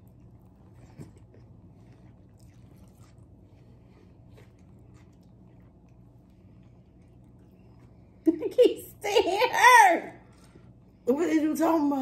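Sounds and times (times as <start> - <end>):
people chewing: 0.0 - 8.3
faint low hum: 0.0 - 12.0.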